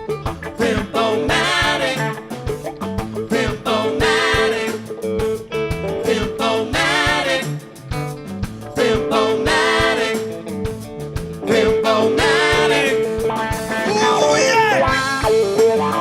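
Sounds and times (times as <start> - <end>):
bending lead guitar line: 0.0 - 16.0
steady drum beat: 0.0 - 16.0.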